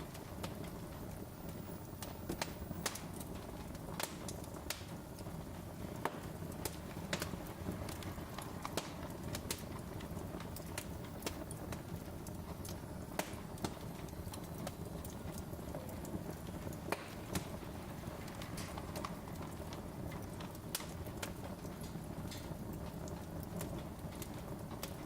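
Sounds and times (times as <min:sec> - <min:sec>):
low rumble of burning: 0:00.0 - 0:25.0
wood fire crackling: 0:00.0 - 0:25.0.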